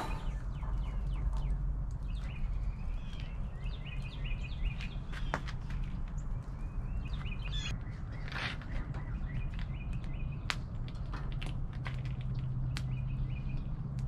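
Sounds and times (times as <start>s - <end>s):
steady low rumble: 0.0s - 8.2s
small birds chirping: 0.0s - 10.8s, 12.2s - 14.0s
wood fire crackling: 0.0s - 14.0s.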